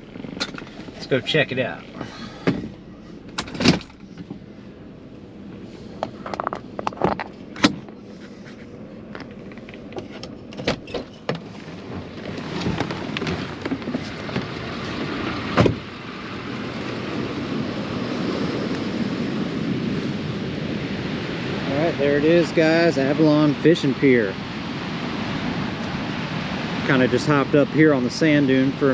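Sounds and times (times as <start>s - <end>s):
ocean surf: 0.0s - 3.3s, 11.2s - 28.9s
wind: 0.0s - 28.9s
truck door shutting: 1.9s - 4.4s, 6.0s - 8.5s, 9.5s - 14.5s, 15.4s - 15.9s.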